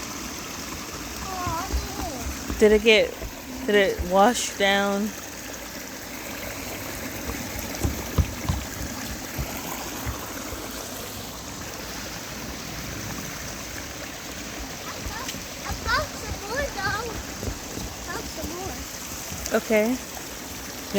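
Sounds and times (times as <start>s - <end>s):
stream water trickling: 0.0s - 20.9s
soft thumps: 1.2s - 4.5s, 7.1s - 10.7s, 15.0s - 19.6s.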